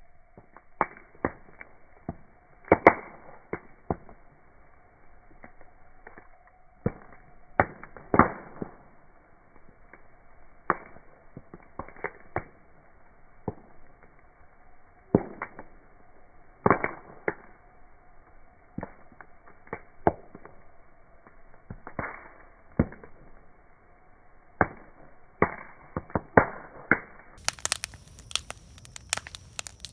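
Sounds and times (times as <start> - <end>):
campfire crackling: 0.0 - 29.9.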